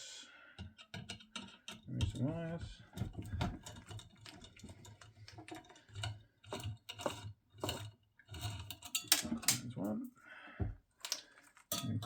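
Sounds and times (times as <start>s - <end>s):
hand tools clicking and tapping: 0.6s - 2.2s.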